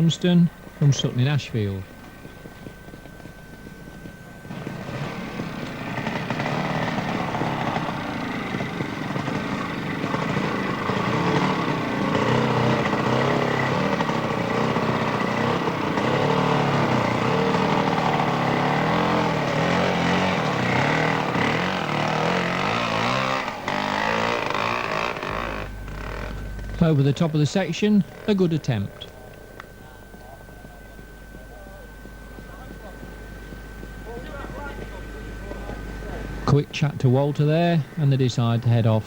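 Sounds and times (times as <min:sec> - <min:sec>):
motorcycle engine revving hard: 0:04.5 - 0:29.0.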